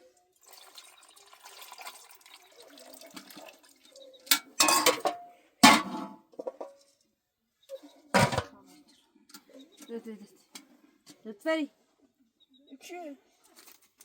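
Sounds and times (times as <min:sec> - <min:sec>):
water running and splashing: 0:00.4 - 0:04.0.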